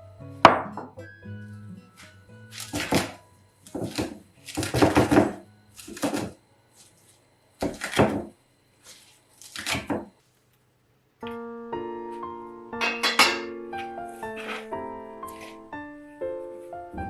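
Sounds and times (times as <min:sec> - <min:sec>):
knife chopping on cutting board: 0:02.6 - 0:06.4, 0:07.6 - 0:08.3, 0:09.4 - 0:10.2, 0:14.4 - 0:14.7.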